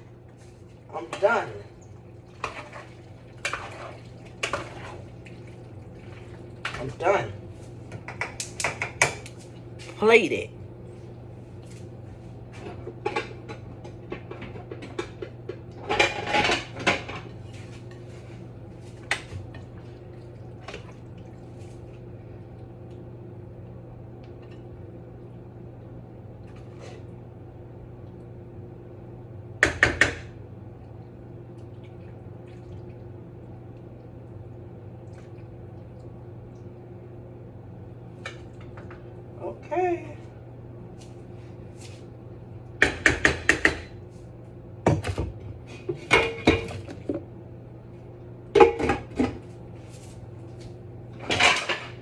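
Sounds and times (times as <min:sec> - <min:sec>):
dishes and utensils clattering: 0:15.8 - 0:17.3, 0:45.8 - 0:47.0, 0:48.6 - 0:49.4, 0:51.2 - 0:52.0.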